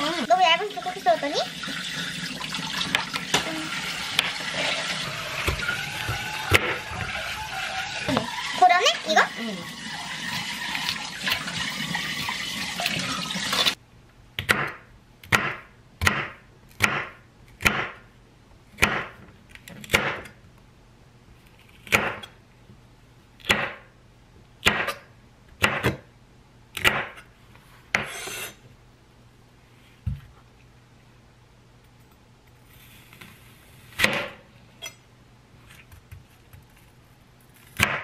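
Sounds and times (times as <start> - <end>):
running tap water: 0.0 - 13.8.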